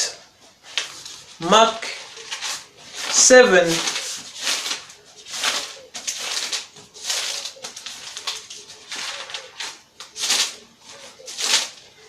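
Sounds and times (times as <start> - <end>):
pigeon cooing: 0.0 - 12.0
pages rustling and turning: 0.4 - 12.0.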